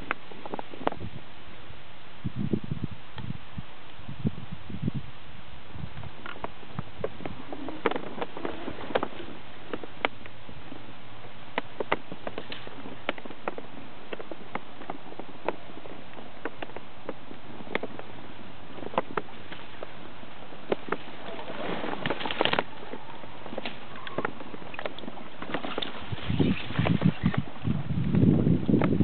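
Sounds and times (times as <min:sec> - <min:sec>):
moving water hiss: 0:05.0 - 0:29.0
small water splashes and drips: 0:23.6 - 0:27.4.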